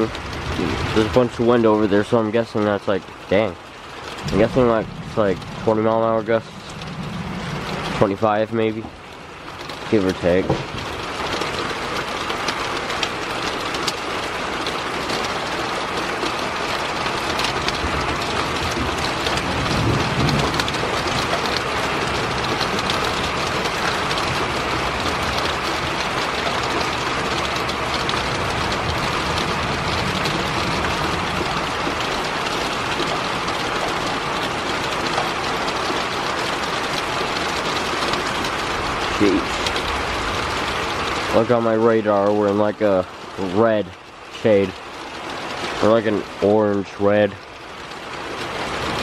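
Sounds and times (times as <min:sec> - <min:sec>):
gusty wind: 0:00.0 - 0:01.9, 0:03.9 - 0:11.3
heavy rain falling: 0:00.0 - 0:49.0.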